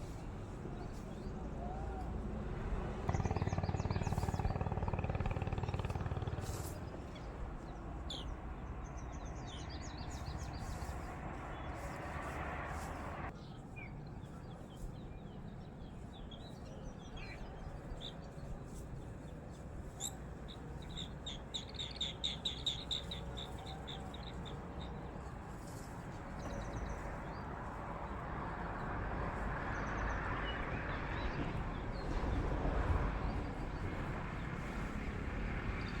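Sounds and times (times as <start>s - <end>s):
outdoor background noise: 0.0s - 36.0s
birds chirping: 3.1s - 12.2s, 20.0s - 28.9s.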